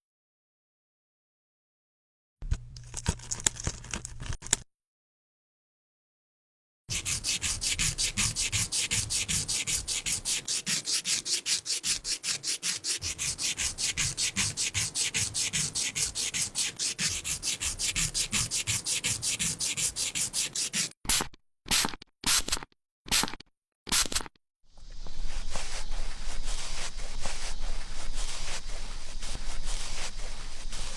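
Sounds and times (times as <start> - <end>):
rapid rubbing strokes: 6.9 - 21.0, 25.0 - 30.9.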